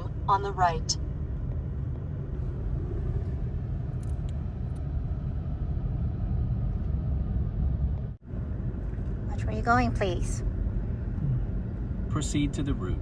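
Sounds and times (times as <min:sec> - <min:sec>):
car interior driving rumble: 0:00.0 - 0:13.0.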